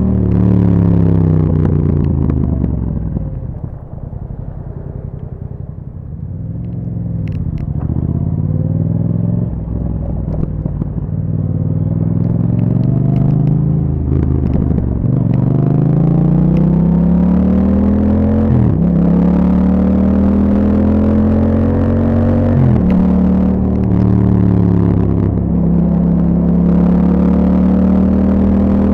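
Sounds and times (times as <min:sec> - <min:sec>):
motorcycle engine accelerating: 0:00.0 - 0:28.9.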